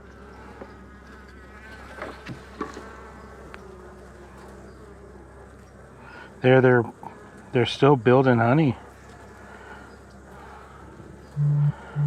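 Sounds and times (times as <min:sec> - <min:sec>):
honeybees buzzing: 0:00.0 - 0:12.0
light knocks of hive frames: 0:00.5 - 0:03.7.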